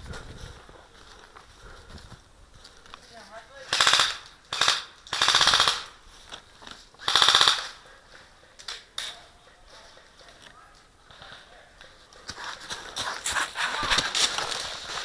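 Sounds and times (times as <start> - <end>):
airsoft gun firing bursts: 3.7 - 6.0, 7.0 - 7.8.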